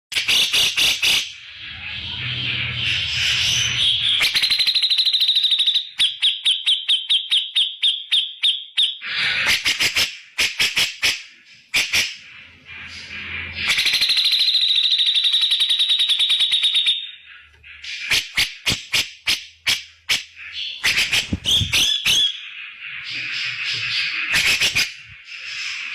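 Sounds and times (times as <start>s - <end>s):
bird sharp clipped notes: 17.8s - 22.4s.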